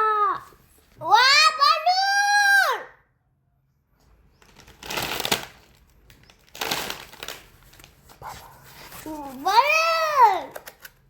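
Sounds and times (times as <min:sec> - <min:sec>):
packet crinkling: 0:04.3 - 0:09.4.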